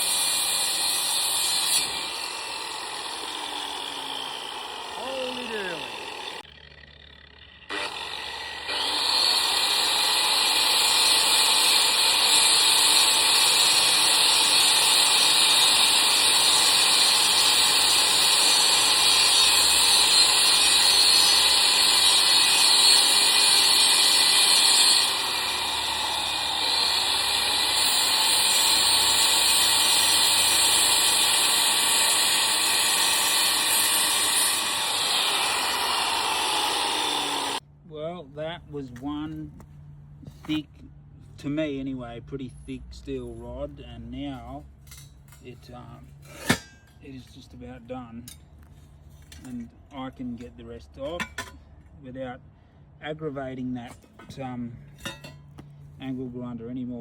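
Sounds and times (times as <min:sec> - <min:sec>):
angle grinder cutting steel: 0:00.0 - 0:37.6, 0:55.0 - 0:55.4.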